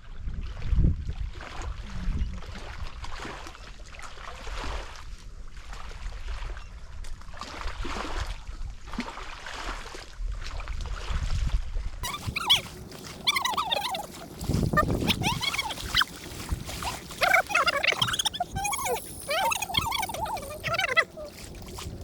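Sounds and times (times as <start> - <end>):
wind rumbling on microphone: 0.0 - 3.2, 10.3 - 22.0
bird calling: 12.0 - 22.0
water lapping: 12.0 - 22.0.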